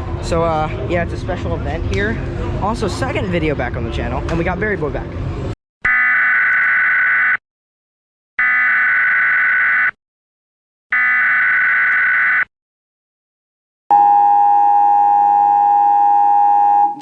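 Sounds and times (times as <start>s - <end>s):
two-tone attention signal: 13.9s - 17.0s.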